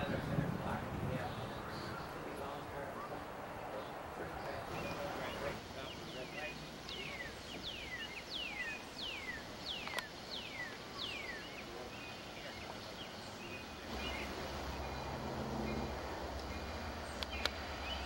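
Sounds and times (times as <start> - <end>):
diesel locomotive engine rumble: 13.8 - 18.0.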